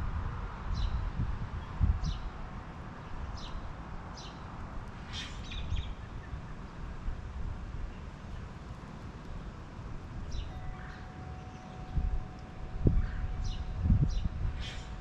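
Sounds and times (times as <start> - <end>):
wind rumble on microphone: 0.0 - 15.0
songbird chip notes: 10.3 - 15.0.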